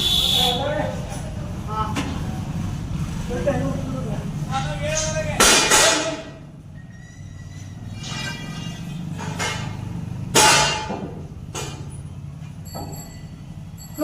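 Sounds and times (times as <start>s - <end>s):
sharp metallic clank: 5.0s - 12.0s.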